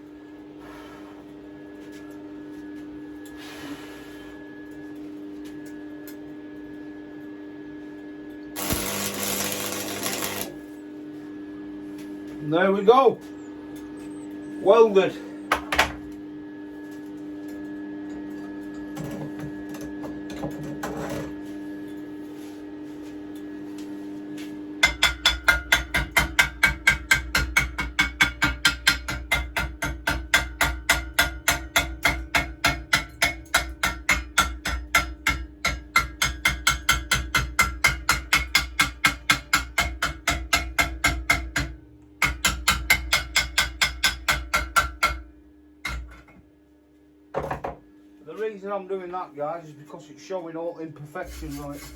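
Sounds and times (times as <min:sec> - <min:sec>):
chipping hammer striking metal: 0:08.6 - 0:10.5
steady hum: 0:08.6 - 0:11.7.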